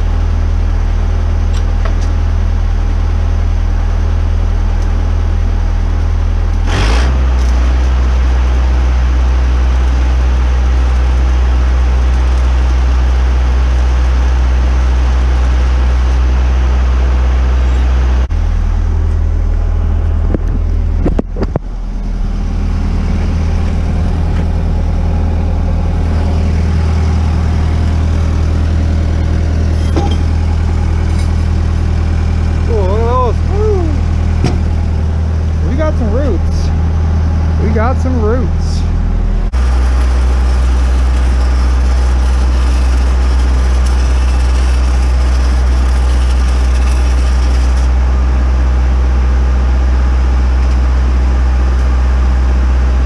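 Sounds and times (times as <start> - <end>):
welding machine engine hum: 0.0 - 53.0
welding arc hiss: 39.6 - 48.0.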